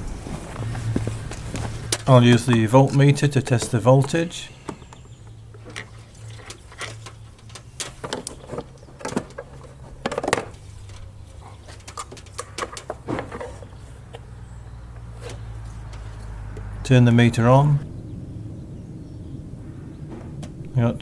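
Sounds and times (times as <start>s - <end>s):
steady low hum: 0.0s - 21.0s
clicks of handling test leads: 0.6s - 14.3s.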